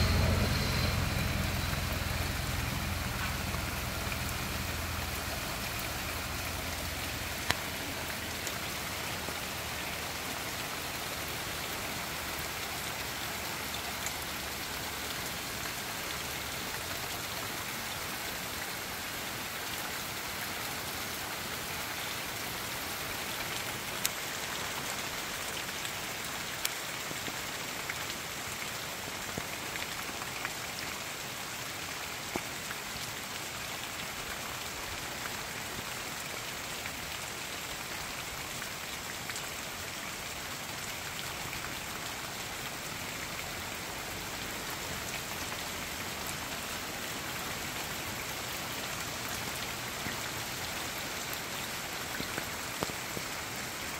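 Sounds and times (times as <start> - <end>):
raindrops ticking close by: 0.0 - 53.9
steady rainfall hissing: 0.0 - 53.9.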